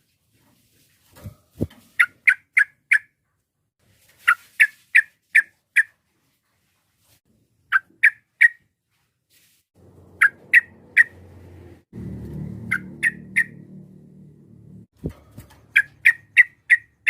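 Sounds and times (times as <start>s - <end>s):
low rumble: 9.8s - 15.2s.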